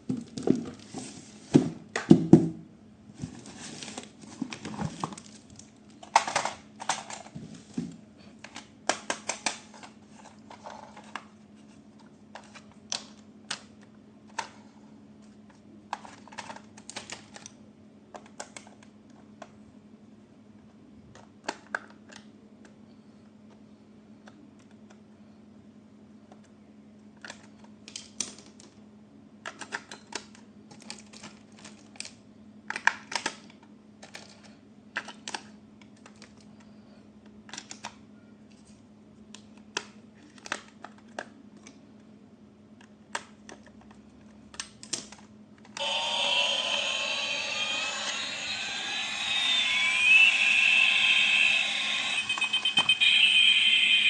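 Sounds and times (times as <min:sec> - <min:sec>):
toy packaging being handled: 0:03.2 - 0:07.6.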